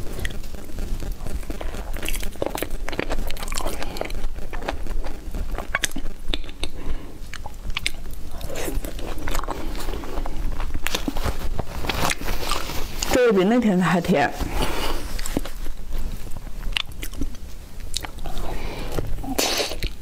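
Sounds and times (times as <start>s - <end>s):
chewing with mouth clicks: 1.5s - 11.2s, 16.6s - 18.5s.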